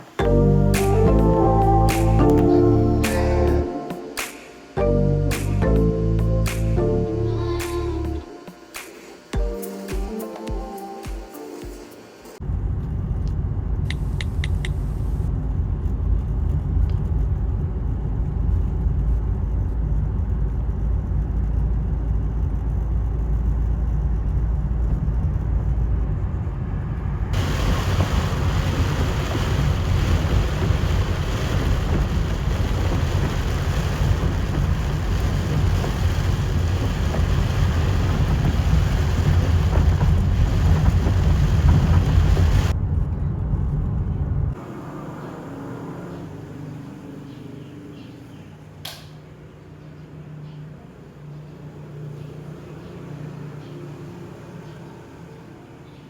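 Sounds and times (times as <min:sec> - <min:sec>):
heavy rain hiss: 0:00.0 - 0:12.4, 0:27.4 - 0:42.7
wind rumble on microphone: 0:12.4 - 0:44.6.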